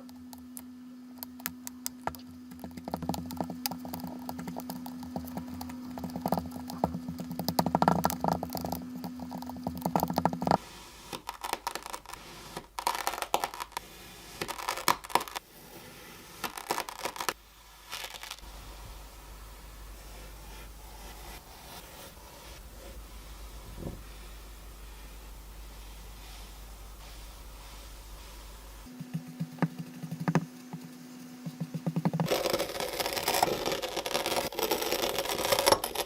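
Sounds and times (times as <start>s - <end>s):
steady low hum: 0.0s - 10.7s, 18.4s - 34.3s.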